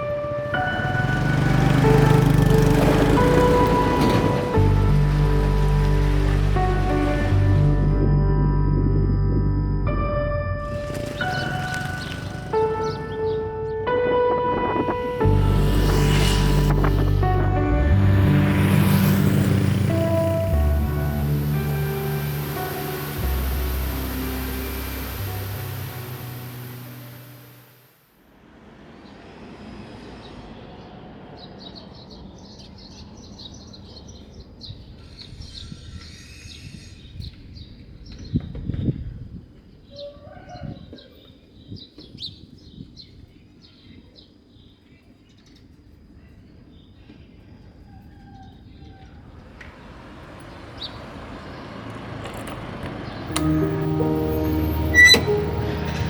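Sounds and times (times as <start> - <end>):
road vehicle rushing: 0.0 - 8.2, 10.6 - 35.6, 49.2 - 56.0
music: 0.0 - 27.7, 53.3 - 56.0
low outdoor rumble: 0.1 - 13.3
small birds chirping: 10.7 - 13.7, 48.5 - 53.5.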